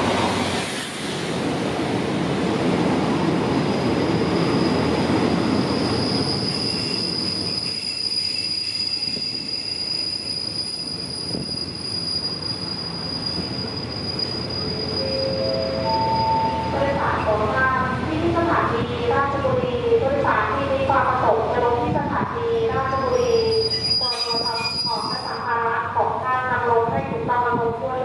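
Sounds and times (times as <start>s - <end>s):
train rumbling: 0.0s - 28.0s
train wheels squealing: 3.7s - 16.8s, 22.8s - 25.6s.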